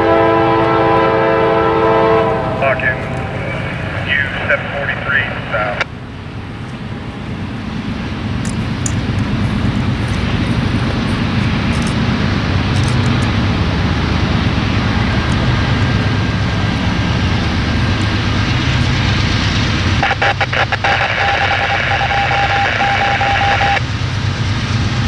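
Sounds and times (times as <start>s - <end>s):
freight train rumbling past: 0.0s - 25.0s
radio static with broken tone: 2.6s - 5.9s, 19.9s - 23.8s.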